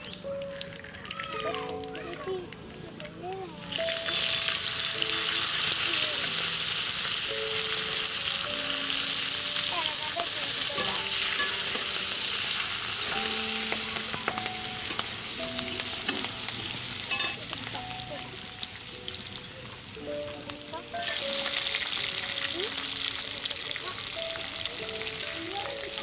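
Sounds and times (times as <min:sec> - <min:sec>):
chickpeas sizzling in hot oil: 0:00.0 - 0:26.0
metal spatula scraping a pan: 0:10.5 - 0:13.1.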